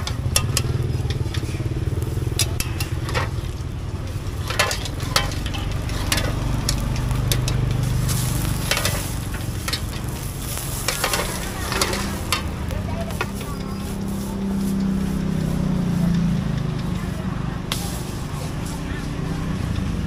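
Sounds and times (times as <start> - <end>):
metal utensils clicking on pan: 0.0 - 14.1
pancake sizzling in oil: 0.5 - 13.6.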